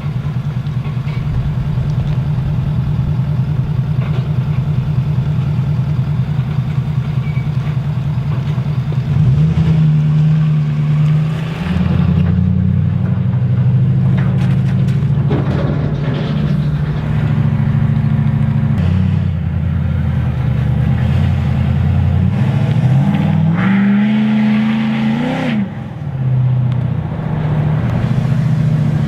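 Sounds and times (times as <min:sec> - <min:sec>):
diesel pickup engine droning: 0:00.0 - 0:29.0.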